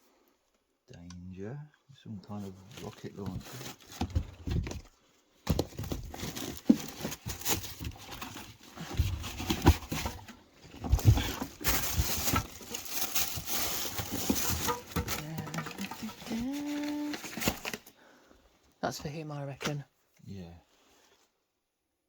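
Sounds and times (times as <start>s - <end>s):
rustling: 2.4s - 18.0s
plastic toys knocking and clicking: 14.0s - 16.4s.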